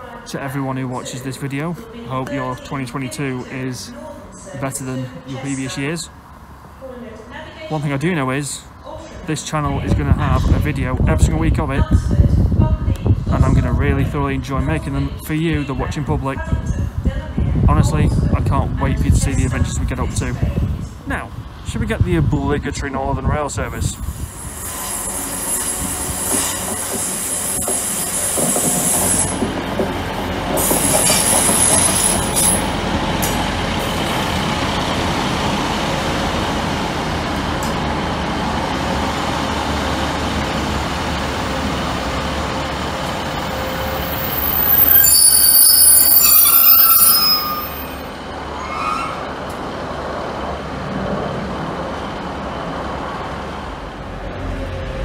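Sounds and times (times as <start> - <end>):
train wheels rumbling on rail: 15.9 - 55.0
wheel squeals: 24.2 - 29.9, 30.5 - 32.8, 43.6 - 49.4.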